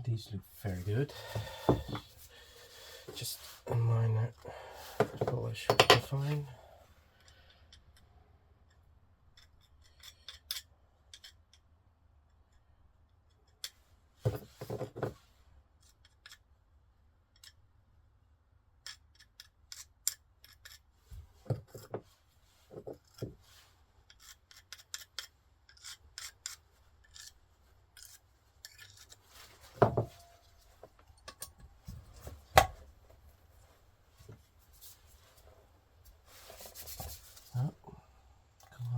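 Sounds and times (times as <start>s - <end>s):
metal parts clicking and scraping: 8.7s - 11.6s, 24.1s - 31.6s.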